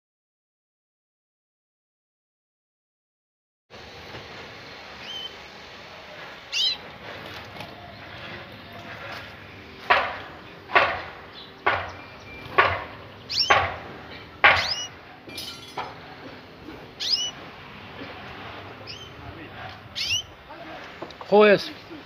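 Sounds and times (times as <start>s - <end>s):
higher bird chirps: 4.7s - 5.5s, 6.4s - 6.9s, 10.4s - 15.2s, 16.9s - 20.6s
canaries short falling calls: 6.5s - 6.8s, 12.4s - 13.6s, 14.5s - 15.0s, 16.9s - 17.4s, 19.9s - 20.3s.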